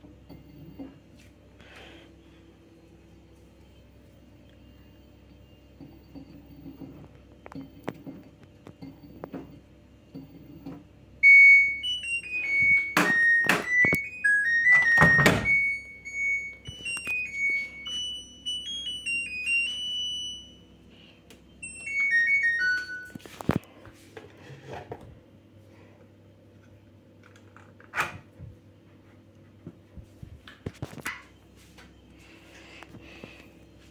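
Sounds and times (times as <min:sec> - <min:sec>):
washing machine beeper melody: 0:01.9 - 0:23.6.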